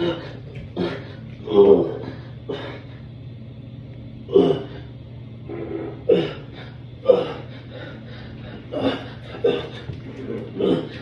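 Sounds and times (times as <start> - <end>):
steady low hum: 0.0 - 11.0
man grunting and straining: 5.8 - 7.5, 8.7 - 11.0.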